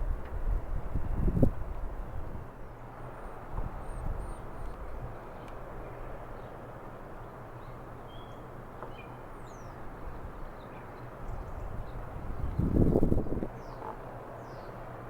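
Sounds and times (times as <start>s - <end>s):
small birds chirping: 3.8s - 14.8s.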